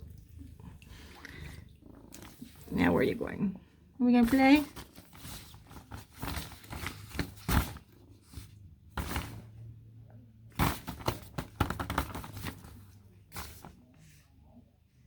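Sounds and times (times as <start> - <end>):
rustling: 4.2 - 9.6, 10.5 - 14.3.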